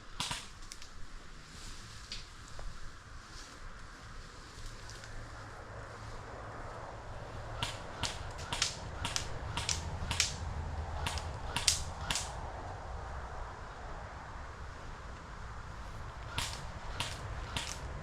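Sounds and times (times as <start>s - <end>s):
airsoft gun shots: 0.1s - 0.6s, 7.5s - 10.4s, 11.0s - 12.4s, 16.2s - 17.9s.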